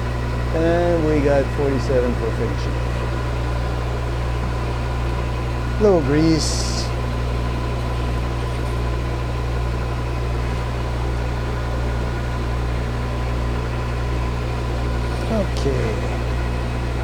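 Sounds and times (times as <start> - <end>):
metal lathe humming: 0.0 - 17.0
faint high whine: 5.7 - 8.8, 11.6 - 16.7.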